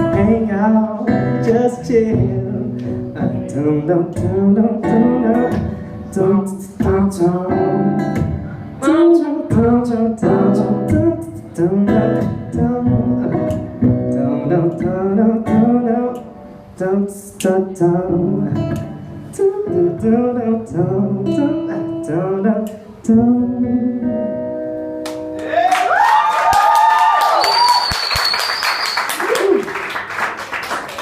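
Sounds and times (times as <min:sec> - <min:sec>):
plucked acoustic guitar chords: 0:00.0 - 0:25.4
applause and cheering: 0:25.4 - 0:31.0.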